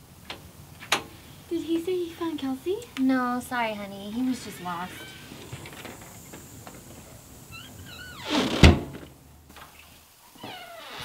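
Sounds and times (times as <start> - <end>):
high door squeaks: 4.4 - 6.0, 7.5 - 8.9, 10.4 - 11.0
door slamming shut: 7.7 - 9.1.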